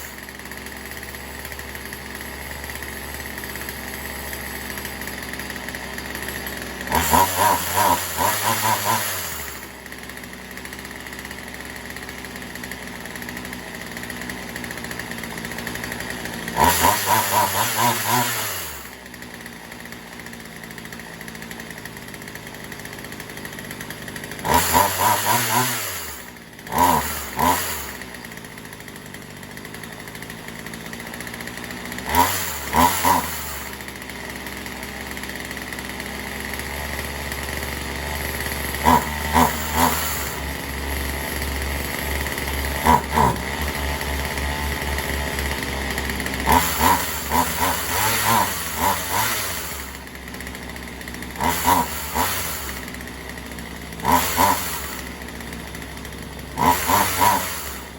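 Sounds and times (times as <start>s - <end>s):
chainsaw idling and revving: 0.0s - 57.9s.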